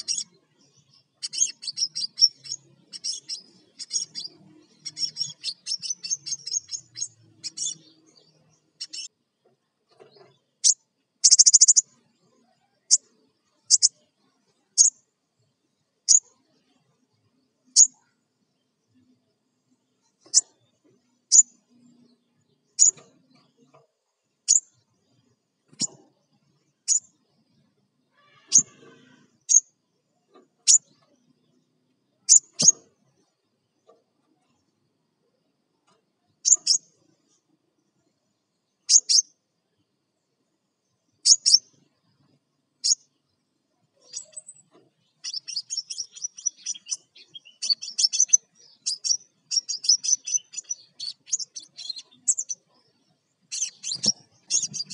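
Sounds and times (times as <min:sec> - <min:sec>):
high bird chip calls: 0:00.0 - 0:09.1, 0:10.6 - 0:11.9, 0:13.6 - 0:14.0, 0:14.8 - 0:15.0, 0:21.3 - 0:21.5, 0:28.1 - 0:29.6, 0:36.4 - 0:36.9, 0:38.8 - 0:39.3, 0:41.2 - 0:41.7, 0:44.0 - 0:52.8, 0:53.5 - 0:54.9
bird calling in sharp high chips: 0:28.2 - 0:29.6.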